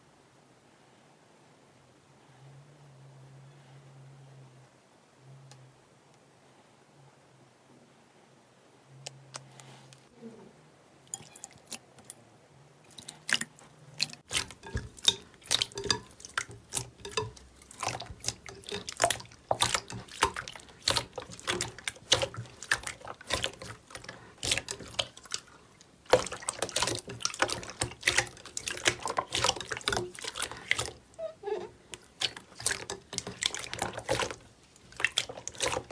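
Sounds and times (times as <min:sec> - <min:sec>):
slime squishing with wet pops: 0:12.9 - 0:35.9.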